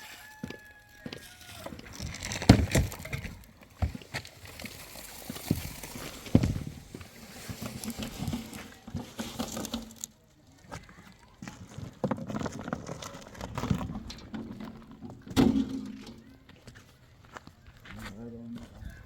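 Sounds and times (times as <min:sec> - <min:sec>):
knocks and thuds: 0:05.5 - 0:07.0.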